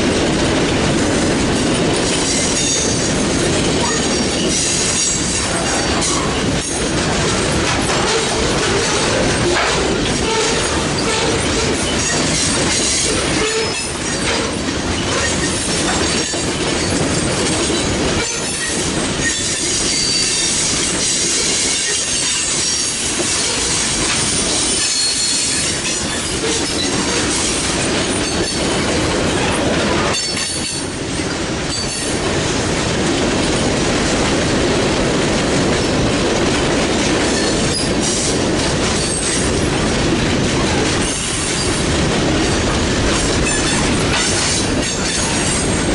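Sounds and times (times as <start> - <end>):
freight train wheels on rails: 0.0 - 45.9
train wheels squealing: 2.2 - 3.2, 10.2 - 27.5, 31.7 - 32.1, 37.3 - 38.3, 39.0 - 39.5.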